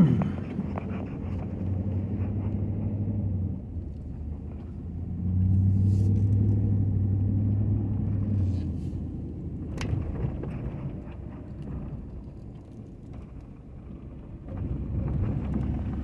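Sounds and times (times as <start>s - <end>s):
pickup truck engine droning: 0.0s - 10.9s.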